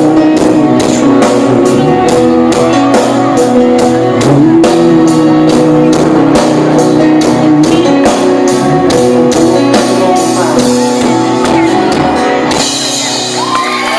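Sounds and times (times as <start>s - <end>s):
country band playing: 0.0s - 13.9s
drums keeping a steady beat: 0.0s - 13.9s
guitar chords ringing out: 0.0s - 13.9s.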